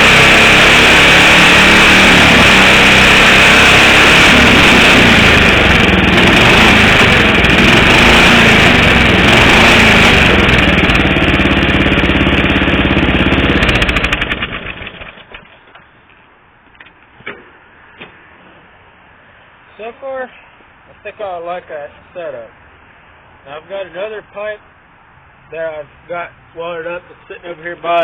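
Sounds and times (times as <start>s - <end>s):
lawn mower engine running: 0.0s - 17.1s.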